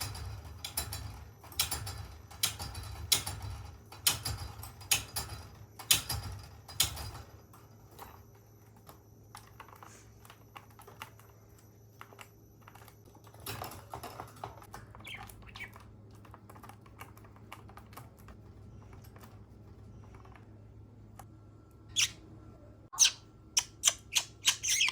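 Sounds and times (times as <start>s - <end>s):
bird clicking and tapping in cage: 0.0s - 7.3s, 12.0s - 20.4s.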